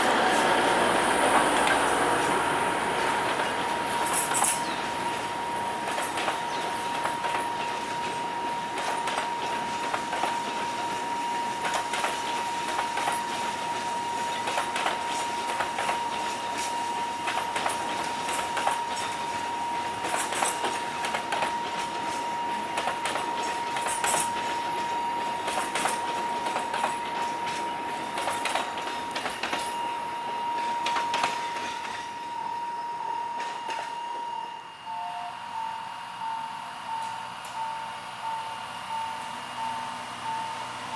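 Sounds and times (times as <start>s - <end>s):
train wheels clicking over rail joints: 0.0s - 32.2s
train rumble: 0.0s - 40.9s.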